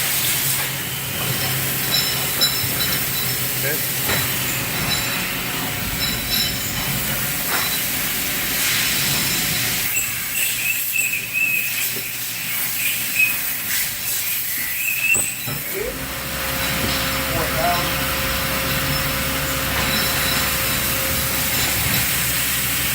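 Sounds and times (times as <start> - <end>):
milling machine hiss: 0.0 - 22.9
high machine whine: 15.4 - 22.9.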